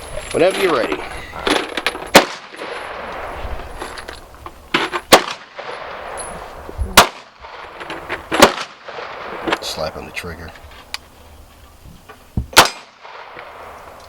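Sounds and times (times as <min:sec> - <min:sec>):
faint bangs: 0:00.4 - 0:14.0
loud gunshots: 0:02.1 - 0:03.1, 0:05.1 - 0:06.2, 0:06.9 - 0:09.5, 0:12.5 - 0:13.7.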